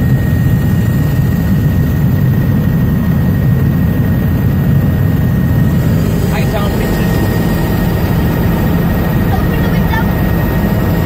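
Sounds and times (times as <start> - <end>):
helicopter low drone: 0.0 - 11.0
high whine: 5.1 - 11.0.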